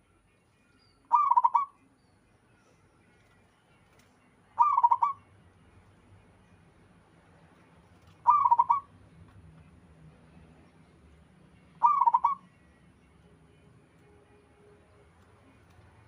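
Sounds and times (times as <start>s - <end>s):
dove cooing: 1.1s - 1.7s, 4.6s - 5.2s, 8.2s - 8.9s, 11.8s - 12.4s.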